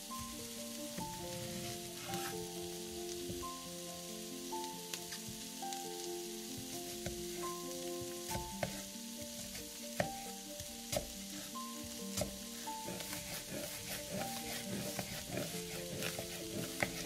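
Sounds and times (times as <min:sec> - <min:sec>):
food sizzling in frying pan: 0:00.0 - 0:17.0
soft background music: 0:00.0 - 0:17.0
stirring clicks and taps: 0:12.1 - 0:17.0.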